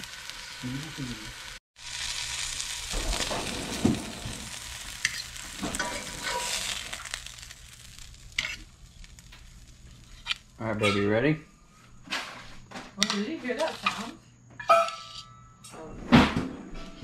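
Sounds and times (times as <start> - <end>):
fish sizzling in oil: 0.0 - 11.3.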